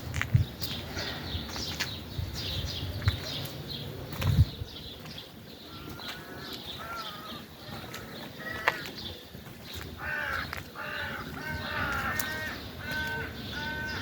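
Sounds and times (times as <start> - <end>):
small birds chirping: 0.0 - 14.0
long pitched bird calls: 0.7 - 14.0.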